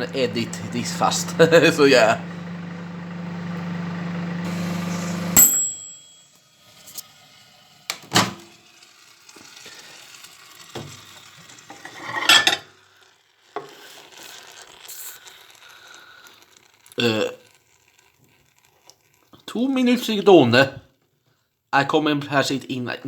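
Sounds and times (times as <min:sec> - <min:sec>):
microwave oven humming: 0:00.0 - 0:06.3.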